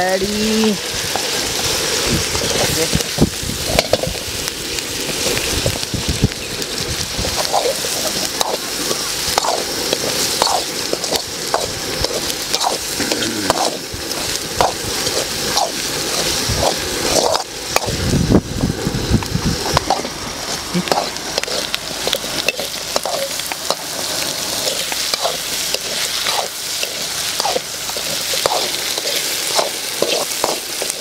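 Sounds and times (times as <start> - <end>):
food sizzling in oil: 0.0 - 31.0
metal spoon scraping wok: 7.3 - 18.0, 19.6 - 31.0.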